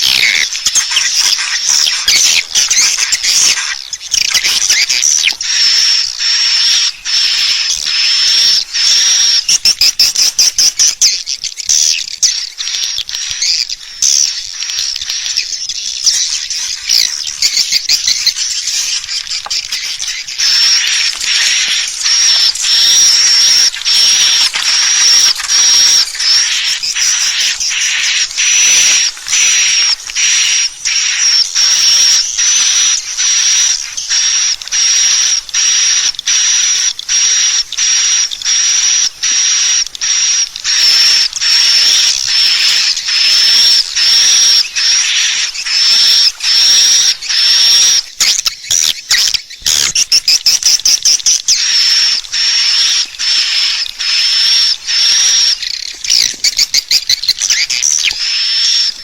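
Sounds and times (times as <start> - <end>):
recorded bird twitter call: 0.0 - 59.0.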